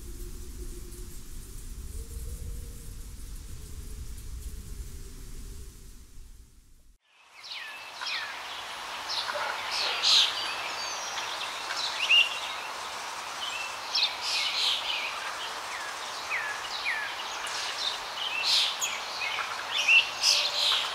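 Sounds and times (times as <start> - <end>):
steady outdoor hiss: 0.0 - 20.9
birds chirping and calling: 7.4 - 20.9.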